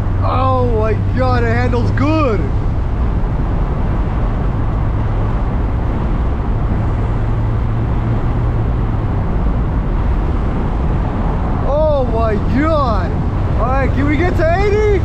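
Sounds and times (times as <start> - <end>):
car engine drone: 0.0 - 15.0
road and wind noise: 0.0 - 15.0.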